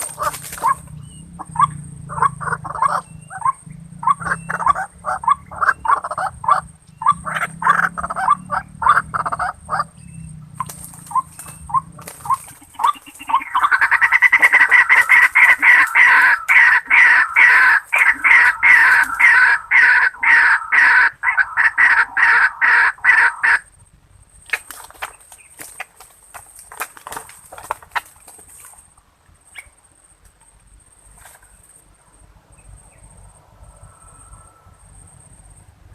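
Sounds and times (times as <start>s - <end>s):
waterhen calling: 0.0s - 10.0s, 10.6s - 23.7s.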